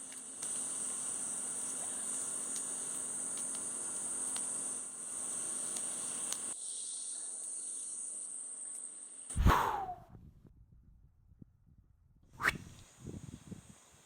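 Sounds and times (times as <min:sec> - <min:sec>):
faint ticks: 0:00.0 - 0:06.6
insect chorus: 0:00.0 - 0:09.4.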